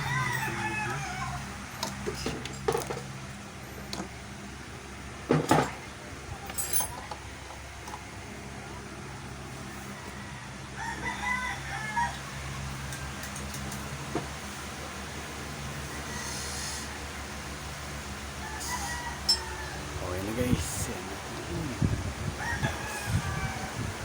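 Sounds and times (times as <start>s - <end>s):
rooster crowing: 0.0s - 1.6s, 9.7s - 13.0s, 18.3s - 21.0s, 21.6s - 24.0s.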